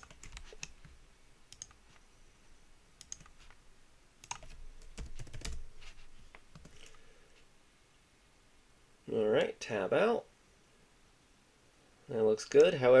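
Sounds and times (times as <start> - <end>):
keyboard keys clicking: 1.5 - 1.8, 3.0 - 3.4, 4.2 - 5.6.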